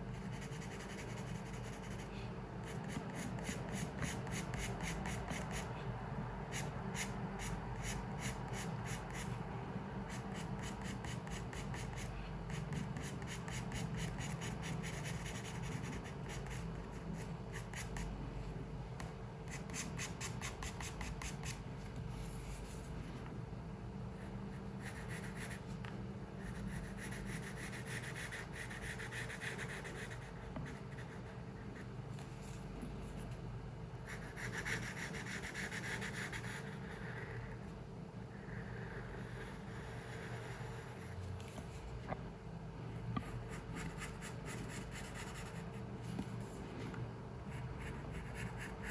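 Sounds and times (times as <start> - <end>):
pencil drawing on paper: 0.1 - 5.7, 10.1 - 18.1, 24.2 - 25.7, 26.4 - 31.3, 34.1 - 37.3, 38.8 - 41.2.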